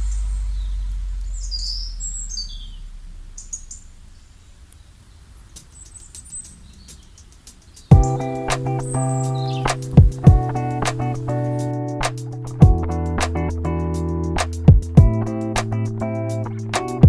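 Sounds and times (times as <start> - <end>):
high bird chirps: 0.0 - 11.8
music: 7.9 - 17.0.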